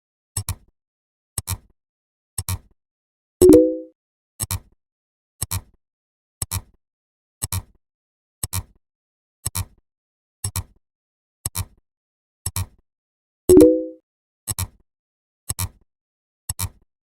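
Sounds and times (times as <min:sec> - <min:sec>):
clock-like double click ticks: 0:13.5 - 0:13.9.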